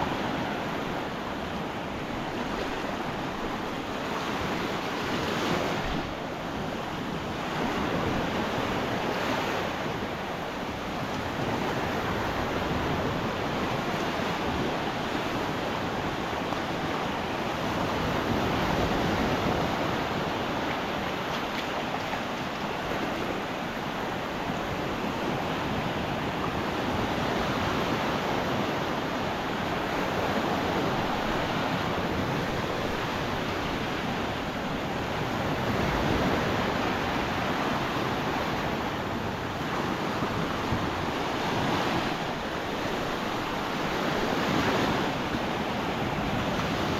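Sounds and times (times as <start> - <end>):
surf breaking on beach: 0.0 - 46.9
wind rumbling on microphone: 0.0 - 46.9.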